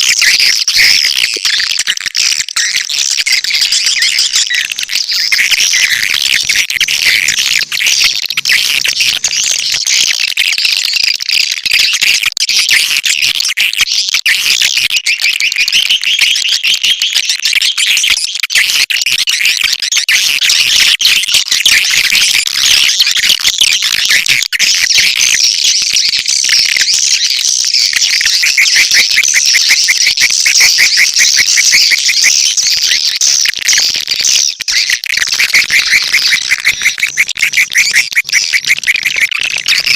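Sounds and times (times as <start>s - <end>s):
swiftlets chirping and twittering: 0.0s - 12.7s, 23.8s - 39.9s.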